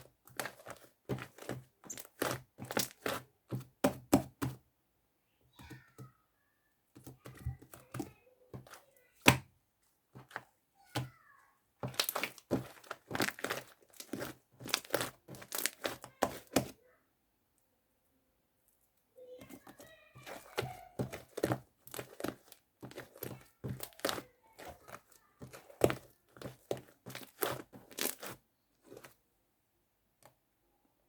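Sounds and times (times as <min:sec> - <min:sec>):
slime squishing with wet clicks: 0:00.3 - 0:03.2, 0:11.9 - 0:16.7.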